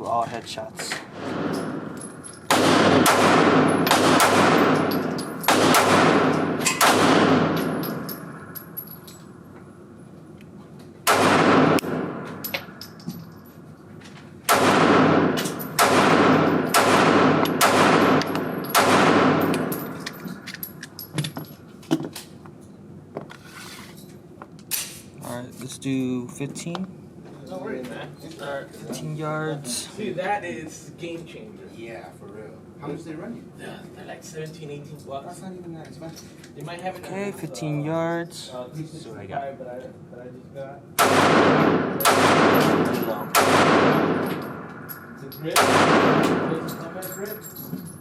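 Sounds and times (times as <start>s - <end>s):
pistol shots: 2.5s - 8.6s, 11.0s - 12.8s, 14.5s - 20.5s, 41.0s - 46.7s.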